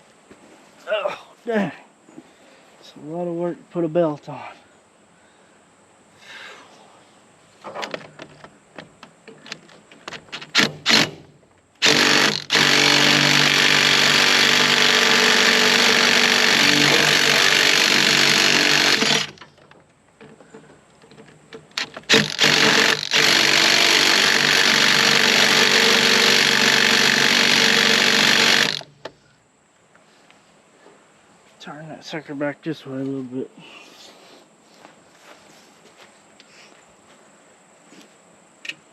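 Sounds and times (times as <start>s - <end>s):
impact wrench hammering: 11.8s - 19.4s, 21.8s - 28.9s.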